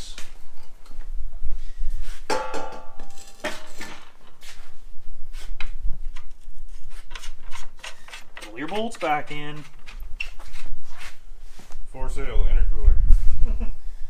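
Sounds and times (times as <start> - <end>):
metal car parts clanking: 2.3 - 4.5, 7.1 - 10.2.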